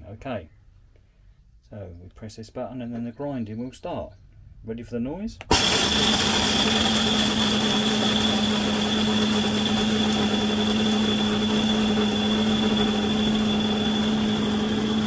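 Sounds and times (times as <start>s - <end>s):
coffee grinder grinding beans: 5.5s - 15.0s.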